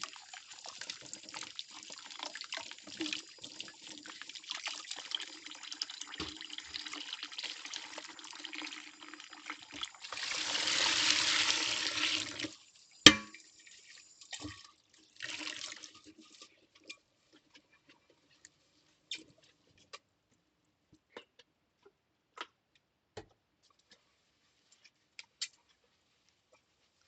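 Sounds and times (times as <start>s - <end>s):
tap water rushing: 0.0s - 8.6s, 9.4s - 13.4s
water trickling and splashing: 0.0s - 19.5s.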